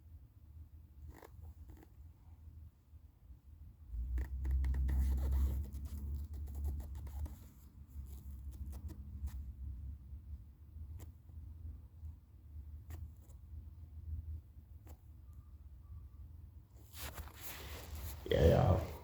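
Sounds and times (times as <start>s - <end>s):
scratching and rustling: 16.8s - 19.0s.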